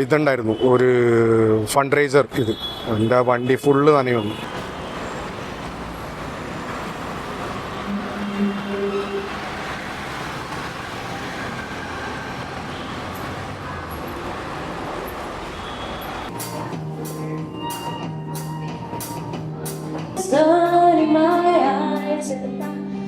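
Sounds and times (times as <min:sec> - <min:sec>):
background music with beat: 0:16.3 - 0:23.0.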